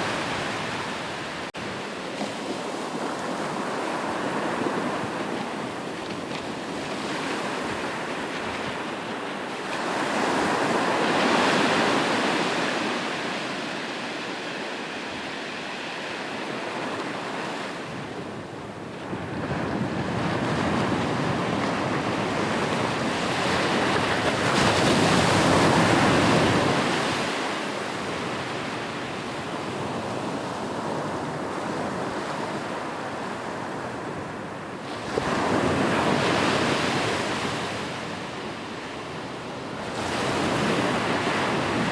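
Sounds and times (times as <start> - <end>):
sea waves breaking on shore: 0.0 - 18.0.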